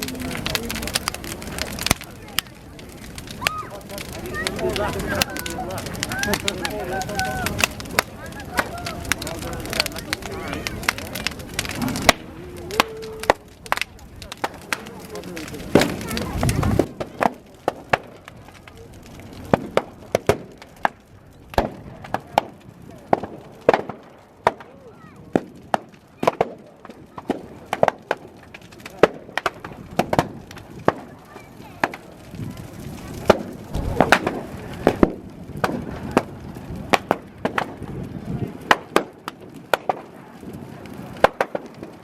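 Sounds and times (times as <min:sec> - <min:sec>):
bonfire crackling and popping: 0:00.0 - 0:42.0.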